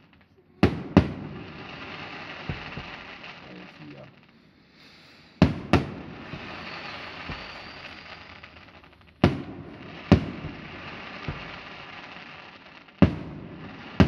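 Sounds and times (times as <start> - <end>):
crackling hiss: 0.0 - 14.0
fireworks bangs: 0.0 - 14.0
soft thuds: 2.4 - 3.1, 10.2 - 11.8.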